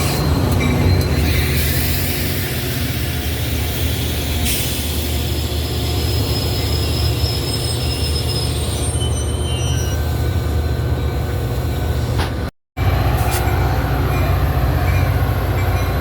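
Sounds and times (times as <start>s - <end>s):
train rumble: 0.0s - 16.0s
high-pitched wheel squeal: 4.9s - 10.2s.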